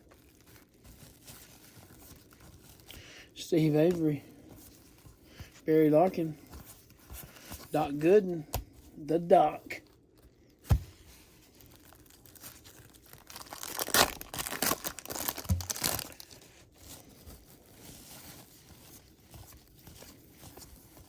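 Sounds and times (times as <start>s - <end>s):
card pack wrapper tearing and crinkling: 0.0s - 3.0s, 9.8s - 19.2s.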